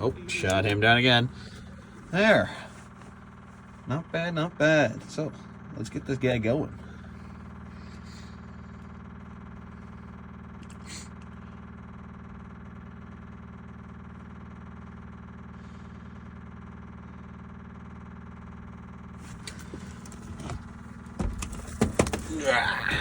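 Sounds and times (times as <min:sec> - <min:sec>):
diesel engine starter cranking: 0:00.0 - 0:11.1, 0:18.9 - 0:23.0
low hum: 0:00.0 - 0:16.2
clicks and rattles: 0:19.2 - 0:23.0.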